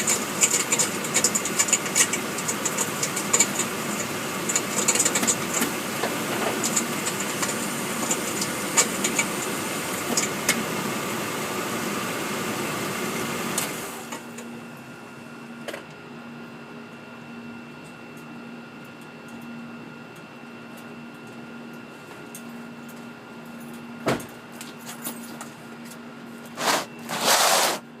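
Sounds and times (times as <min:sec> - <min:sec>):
vehicle underbody rattling buzz: 0:00.0 - 0:10.3.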